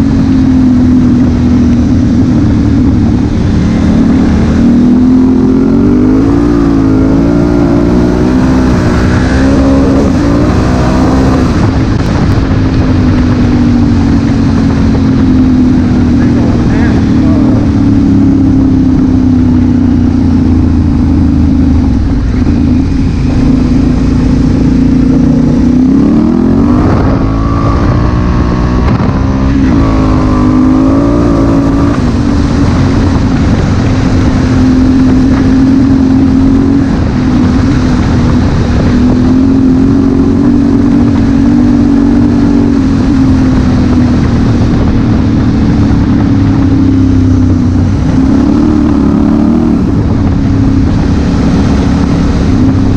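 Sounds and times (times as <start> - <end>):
motorcycle engine running: 0.0 - 52.9
wind rush: 0.0 - 52.9.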